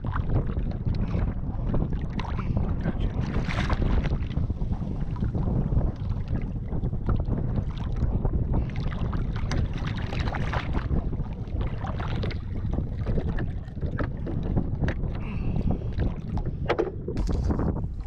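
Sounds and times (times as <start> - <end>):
water slapping against boat hull: 0.0 - 18.0
wind buffeting microphone: 0.0 - 18.0.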